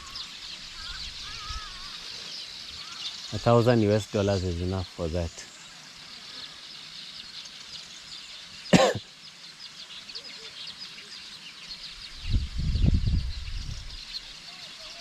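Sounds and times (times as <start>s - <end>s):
small birds chirping: 0.0s - 15.0s
person coughing: 8.8s - 9.0s.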